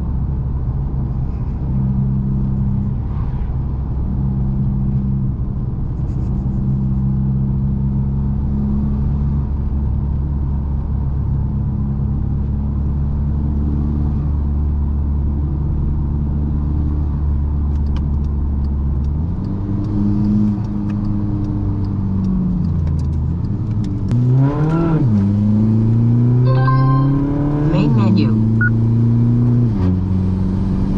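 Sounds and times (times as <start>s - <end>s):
diesel car engine revving: 18.2s - 26.4s, 27.2s - 30.9s.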